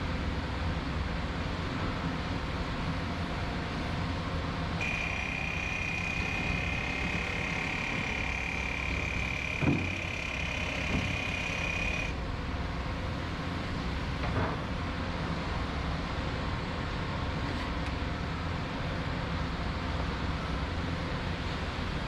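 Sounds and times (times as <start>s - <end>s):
heavy machinery engine hum: 4.7s - 14.6s
high steady whine: 4.8s - 12.8s.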